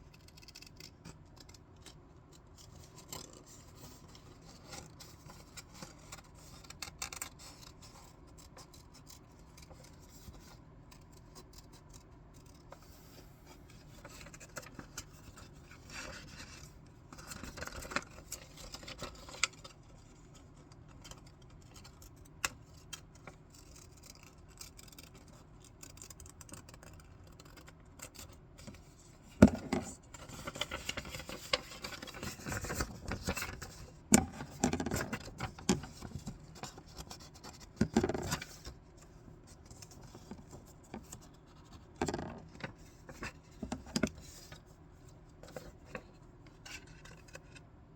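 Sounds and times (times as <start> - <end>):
paper rustling: 29.3 - 38.8.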